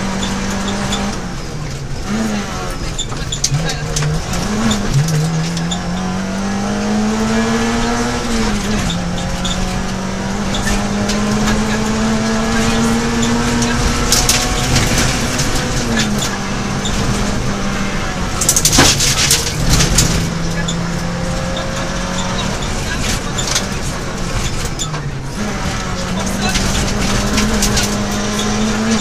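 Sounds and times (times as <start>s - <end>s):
rally car engine revving: 0.0s - 29.0s
rattling knocks: 13.3s - 17.4s, 18.4s - 25.0s.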